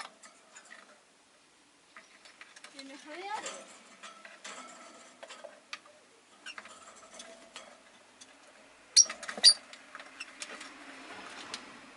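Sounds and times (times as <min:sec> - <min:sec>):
lovebirds chirping: 0:08.9 - 0:10.3.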